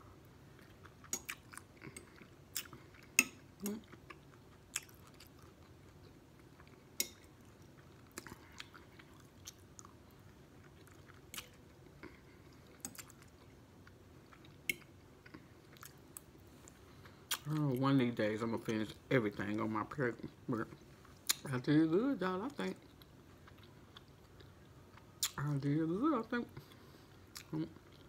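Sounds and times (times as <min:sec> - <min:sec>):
chewing soft food: 0:00.1 - 0:17.9, 0:22.6 - 0:25.6, 0:26.5 - 0:28.0.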